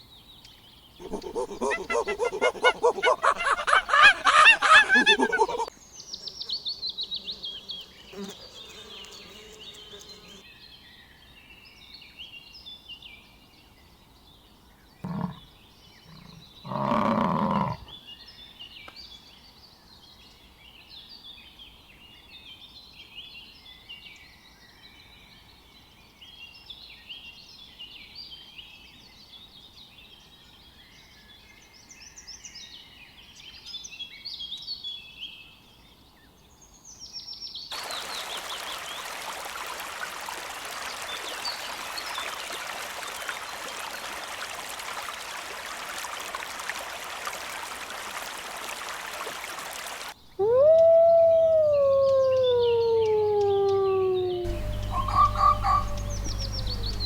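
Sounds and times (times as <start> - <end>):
animal calls: 1.0 - 10.3, 15.0 - 15.5, 16.1 - 17.9, 50.3 - 57.0
birds chirping: 1.0 - 10.4, 50.4 - 57.0.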